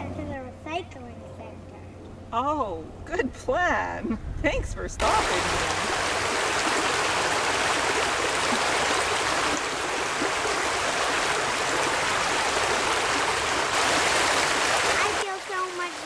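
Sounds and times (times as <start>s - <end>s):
creek water rushing: 5.0s - 16.0s.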